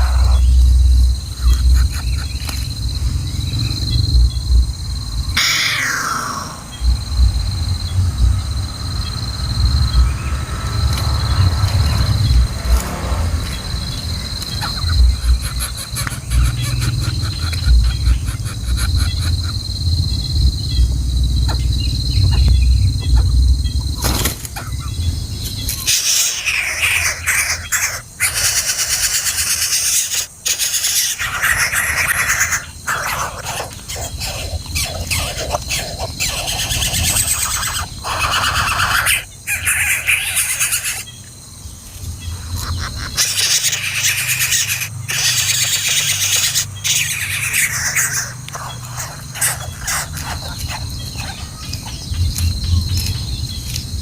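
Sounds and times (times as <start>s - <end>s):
nestlings squealing for food: 0.0s - 0.6s, 5.4s - 6.8s, 14.4s - 19.7s, 25.7s - 41.2s, 42.2s - 52.1s
low rumble: 0.0s - 15.5s, 17.6s - 24.0s.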